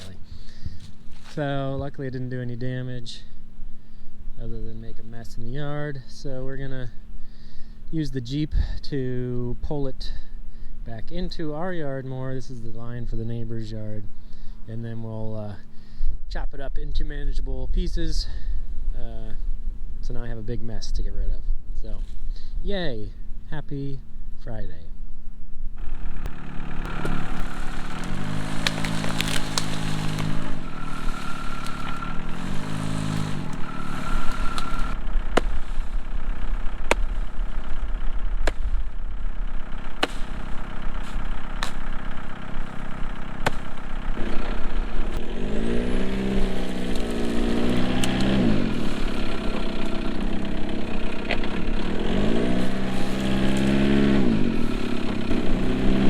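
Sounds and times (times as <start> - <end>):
engine revving: 0.0 - 1.5, 25.8 - 56.0.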